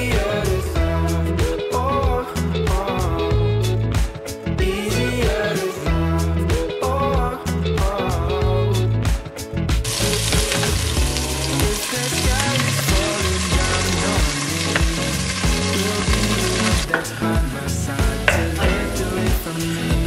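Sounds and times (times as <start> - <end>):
food sizzling in a pan: 9.9 - 19.9.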